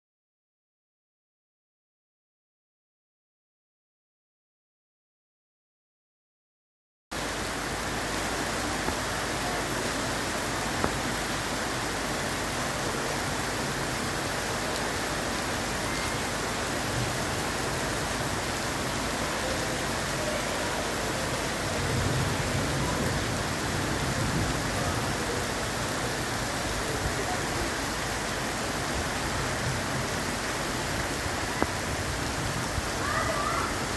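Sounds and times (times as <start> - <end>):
rain falling: 7.1 - 33.9.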